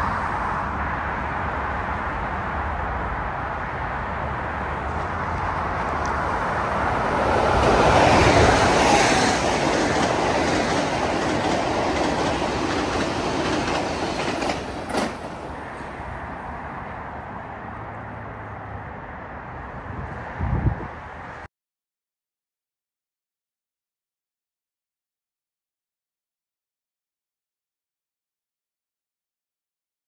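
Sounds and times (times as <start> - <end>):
train wheels rushing on rail: 0.0 - 17.6.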